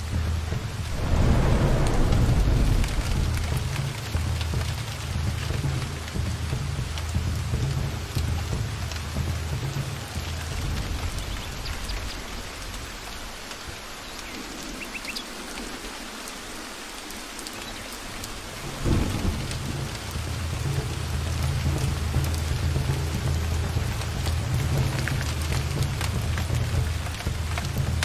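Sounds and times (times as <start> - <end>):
rain falling: 0.0 - 28.0
thunder rumble: 0.1 - 8.3, 18.3 - 28.0
low thud: 0.8 - 4.8.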